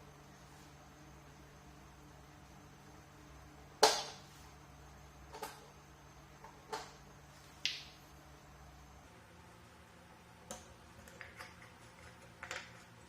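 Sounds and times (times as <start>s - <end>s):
desk fan parts clicking and knocking: 10.5s - 13.0s.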